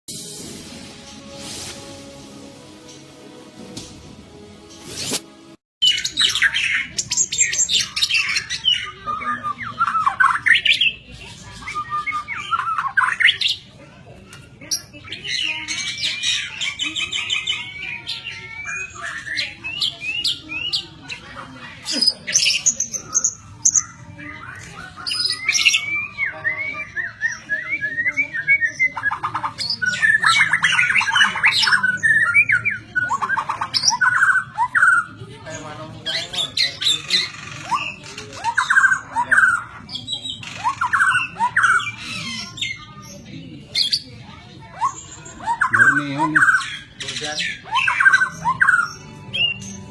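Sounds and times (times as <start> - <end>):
bird singing whistled song: 5.8 - 10.9, 11.5 - 13.6, 15.3 - 20.8, 22.3 - 35.1, 36.1 - 42.8, 44.8 - 49.9.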